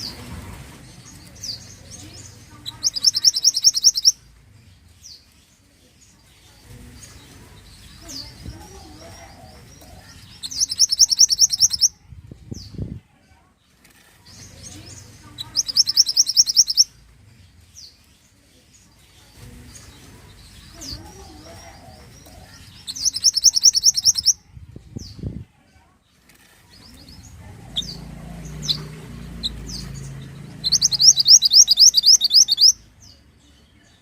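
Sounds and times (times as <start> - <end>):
short high bird chirps: 2.8 - 4.2, 10.4 - 11.9, 15.5 - 16.9, 22.9 - 24.4, 30.6 - 32.8
songbird fast high trill: 30.6 - 32.8.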